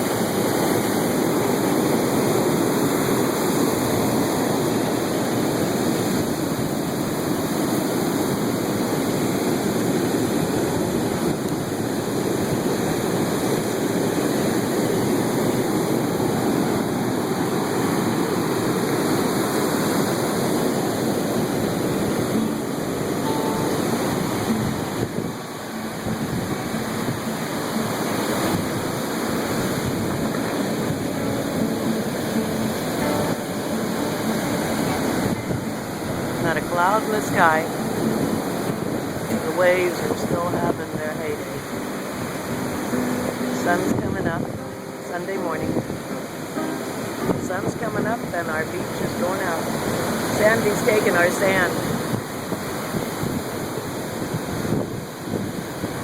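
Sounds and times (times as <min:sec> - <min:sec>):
heavy surf breaking on beach: 0:00.0 - 0:56.0.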